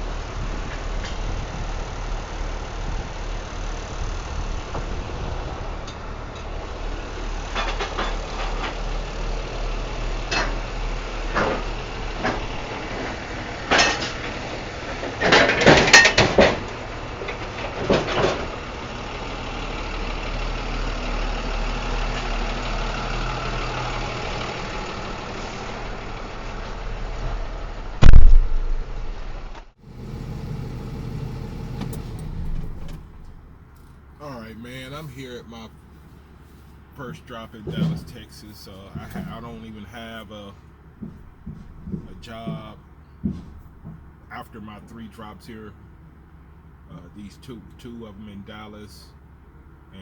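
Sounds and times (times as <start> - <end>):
vehicle engine idling: 0.0 - 28.0, 29.8 - 50.0
crates clanking and knocking: 15.0 - 18.6, 29.8 - 35.8, 37.0 - 44.9.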